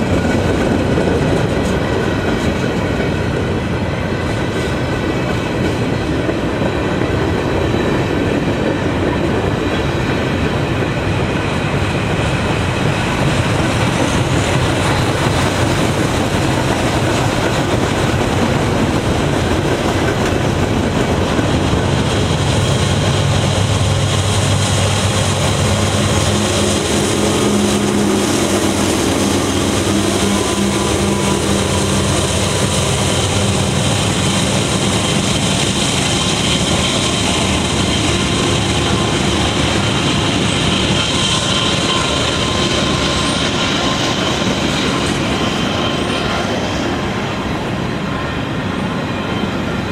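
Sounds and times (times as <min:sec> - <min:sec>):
train rumbling and clattering past: 0:00.0 - 0:49.9.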